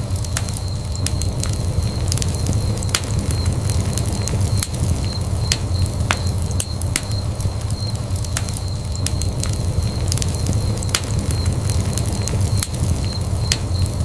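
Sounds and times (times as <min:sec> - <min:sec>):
flames rumbling: 0:00.0 - 0:14.0
wood fire crackling and popping: 0:00.0 - 0:14.0.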